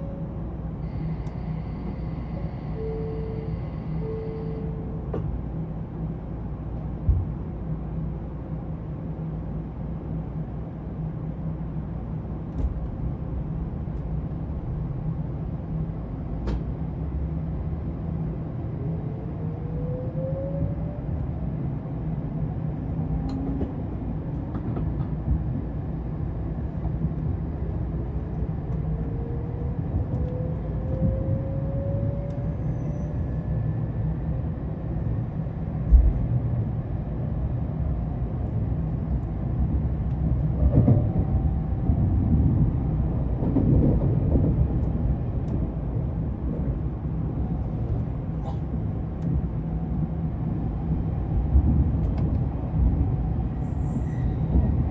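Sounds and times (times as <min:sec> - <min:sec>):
train low rumble: 0:00.0 - 0:54.9.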